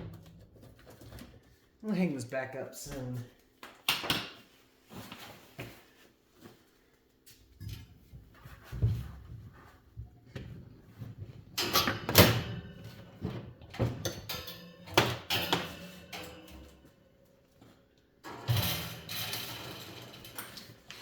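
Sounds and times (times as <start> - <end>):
objects knocking and clattering: 7.6 - 21.0.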